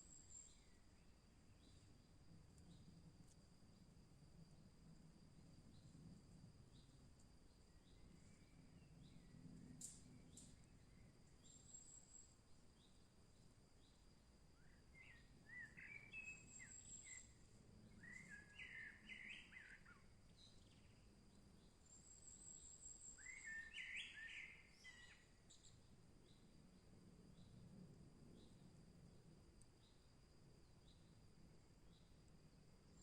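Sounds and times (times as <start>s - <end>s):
songbird chirping: 6.7s - 26.5s.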